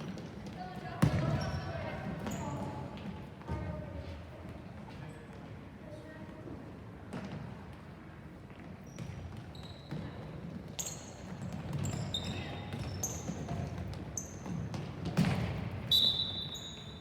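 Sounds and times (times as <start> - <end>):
murmur of players and spectators: 0.0 - 17.0
shoe squeaks on court floor: 8.8 - 14.7, 15.8 - 17.0.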